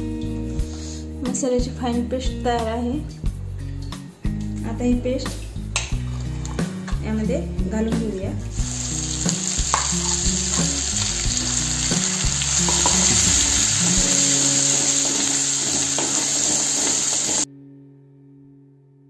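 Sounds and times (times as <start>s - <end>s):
spice paste sizzling in oil: 8.5s - 17.5s.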